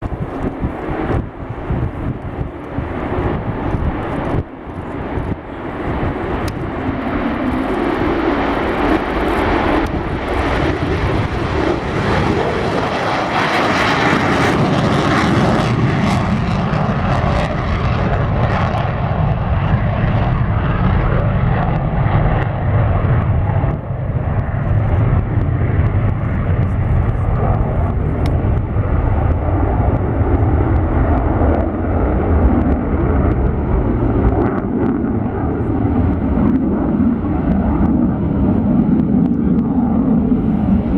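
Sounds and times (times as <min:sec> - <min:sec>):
deep jet rumble: 0:00.0 - 0:40.9
jet engine roar: 0:00.0 - 0:40.9.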